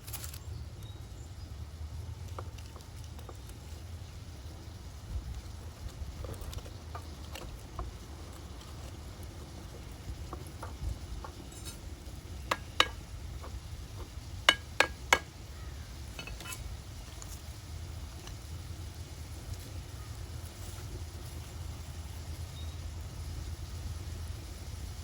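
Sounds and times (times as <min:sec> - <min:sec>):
metal utensil knocking on pot: 0:12.5 - 0:13.6, 0:14.5 - 0:15.3.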